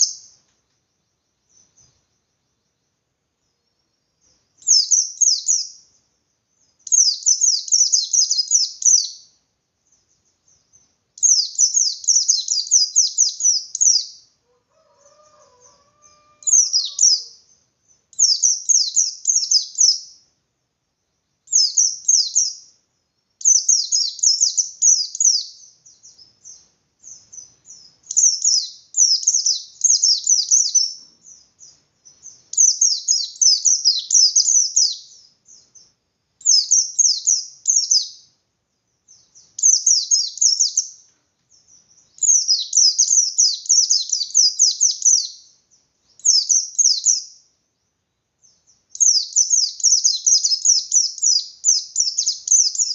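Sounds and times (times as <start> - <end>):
bird singing fast chattering song: 0.0 - 14.4, 16.4 - 20.3, 21.0 - 52.9.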